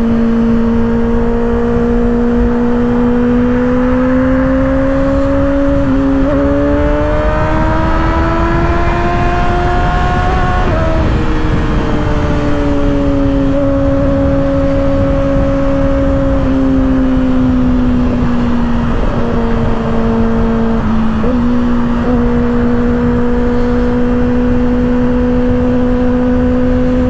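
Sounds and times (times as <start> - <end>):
motorcycle engine running: 0.0 - 27.0
wind noise on microphone: 0.0 - 27.0.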